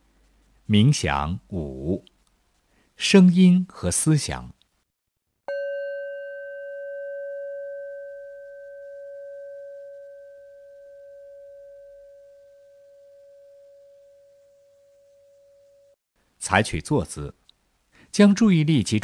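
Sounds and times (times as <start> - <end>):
meditation bell ringing: 5.5 - 16.0.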